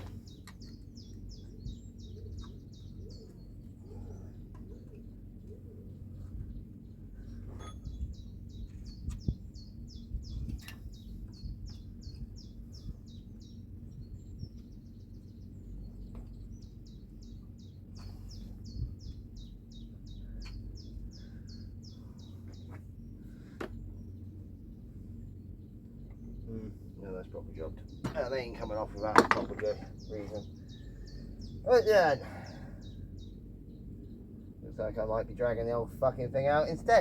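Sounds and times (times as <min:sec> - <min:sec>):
steady low rumble: 0:00.0 - 0:37.0
buzzy bird trill: 0:24.0 - 0:37.0.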